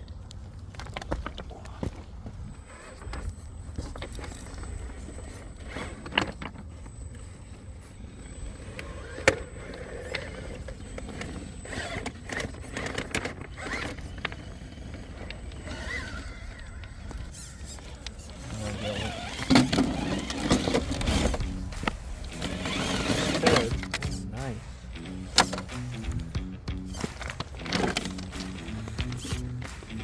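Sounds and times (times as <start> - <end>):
tyres scraping on rock: 0.4 - 24.3
electric drivetrain whine: 2.3 - 30.0.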